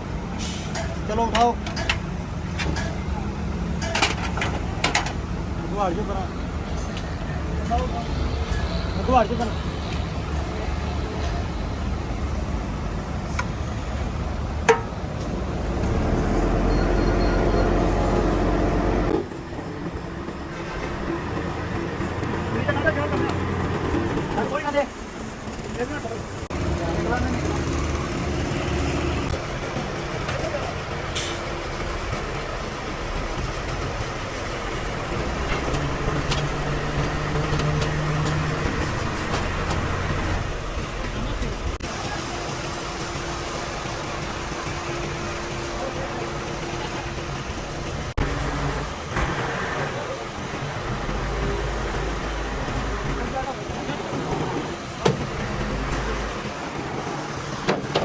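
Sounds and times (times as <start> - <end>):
steady mechanical rumble: 10.5 - 58.0
engine running: 12.6 - 58.0.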